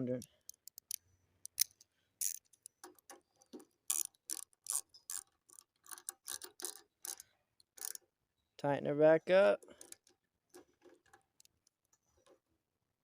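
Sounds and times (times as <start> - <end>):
ratchet wrench clicking: 0.2 - 3.1, 3.9 - 7.2, 7.8 - 8.0.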